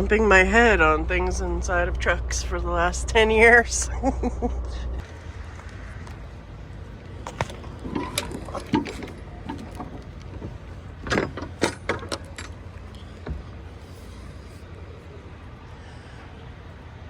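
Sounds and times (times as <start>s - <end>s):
steady low hum: 0.0s - 17.0s
light metallic rattles: 7.2s - 14.6s.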